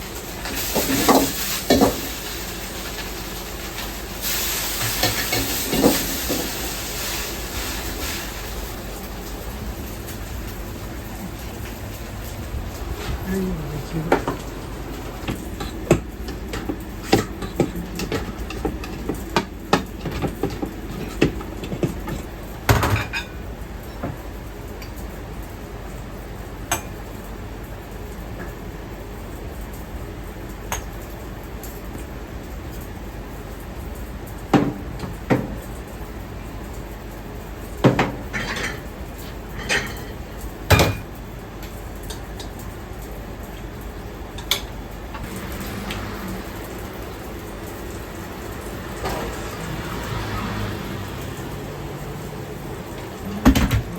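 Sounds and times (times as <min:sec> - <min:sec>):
steady background hum: 0:00.0 - 0:49.7
utensils and bowls clinking: 0:00.1 - 0:23.4, 0:37.9 - 0:42.7
dishes and pots clanking: 0:00.4 - 0:03.8, 0:04.8 - 0:06.7, 0:15.2 - 0:23.4, 0:37.8 - 0:41.1.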